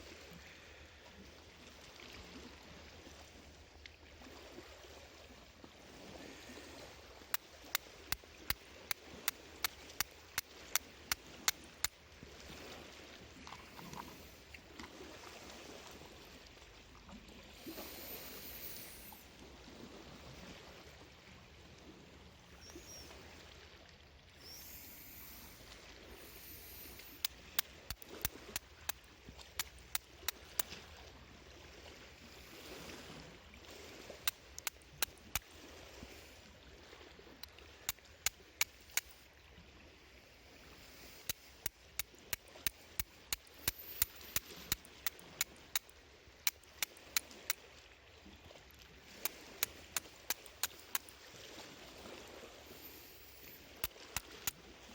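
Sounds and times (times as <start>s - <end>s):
water sound: 4.0s - 54.9s
campfire crackling: 49.1s - 51.2s.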